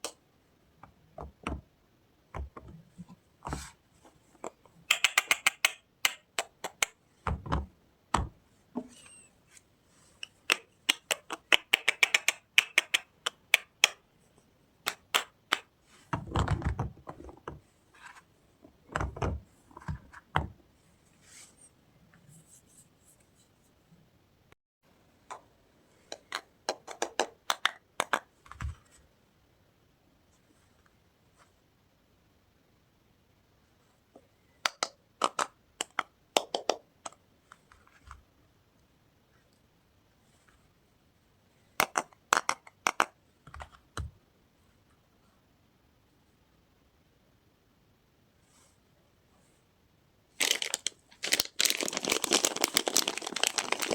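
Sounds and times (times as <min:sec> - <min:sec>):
packaging crinkling: 0:50.4 - 0:53.9.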